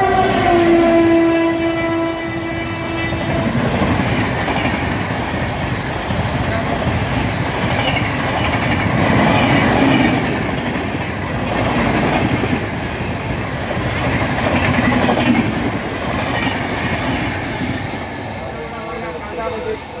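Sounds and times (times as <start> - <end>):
train wheels clacking on rails: 0.0 - 20.0.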